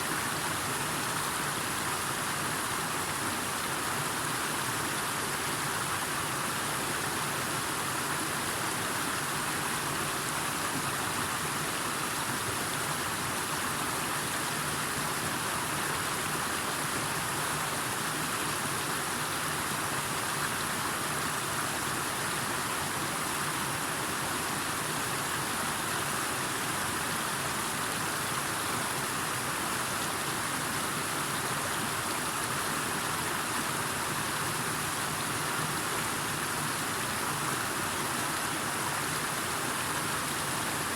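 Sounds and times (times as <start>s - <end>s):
water rushing: 0.0s - 40.9s.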